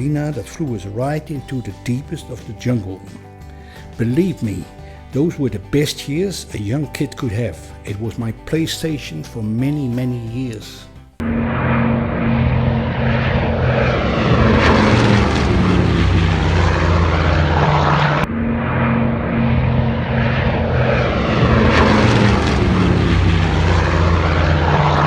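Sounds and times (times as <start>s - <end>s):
propeller plane engines droning: 11.2s - 25.0s.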